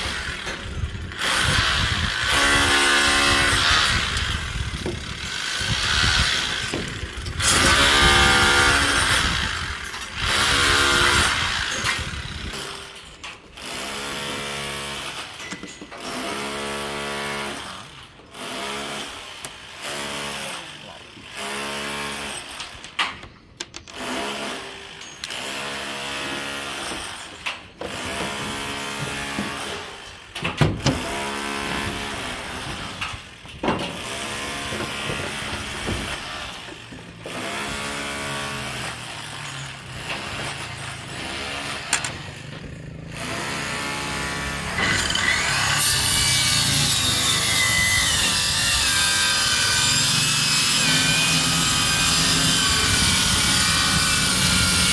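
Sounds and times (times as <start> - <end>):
steady sawing: 0.0 - 12.9, 24.0 - 54.9.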